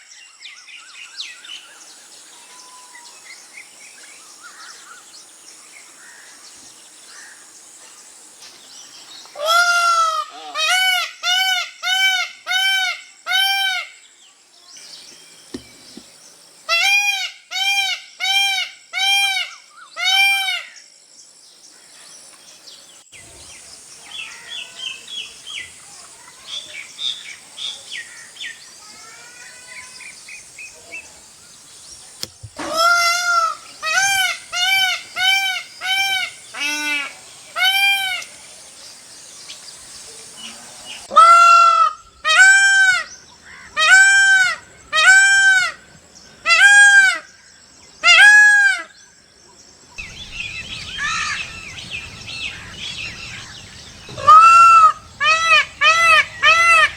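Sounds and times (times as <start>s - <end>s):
peacock calling: 1.3s - 5.2s, 9.3s - 14.0s, 14.8s - 20.8s, 23.2s - 47.4s, 48.0s - 49.0s, 50.0s - 56.9s
small birds chirping: 14.0s - 16.7s, 21.1s - 41.1s, 48.9s - 56.9s.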